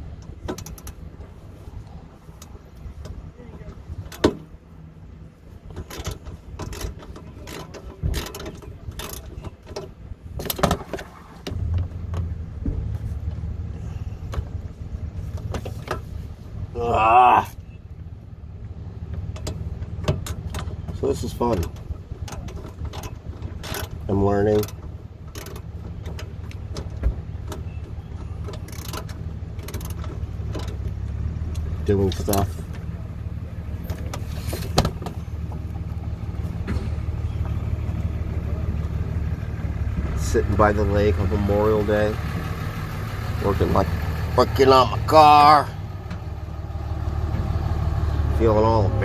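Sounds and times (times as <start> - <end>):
steady low rumble: 0.0 - 49.0
metal clicks and knocks of tools: 5.7 - 11.1.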